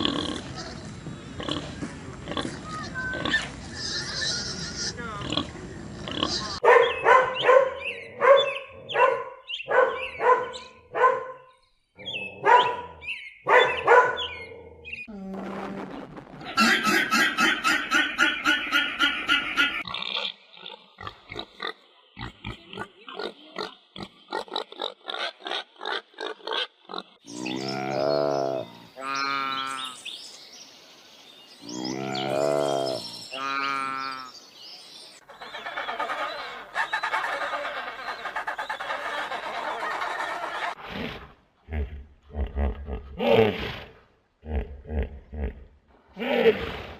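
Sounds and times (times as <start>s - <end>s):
dog barking: 6.6s - 11.5s, 12.4s - 12.9s, 13.5s - 14.4s
pig grunting: 31.7s - 34.0s.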